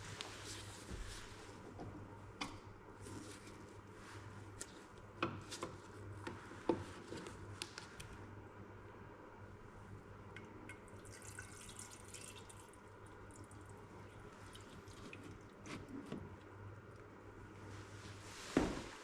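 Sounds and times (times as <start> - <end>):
steady low hum: 0.0 - 19.0
oil dripping: 10.4 - 15.9.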